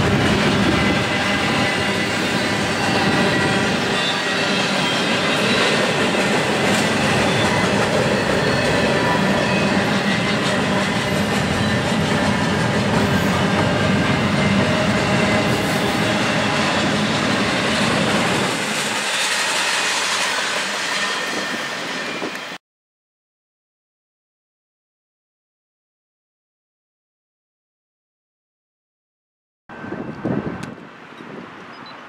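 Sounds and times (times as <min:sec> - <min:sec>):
freight cars rolling on rails: 0:00.0 - 0:22.6.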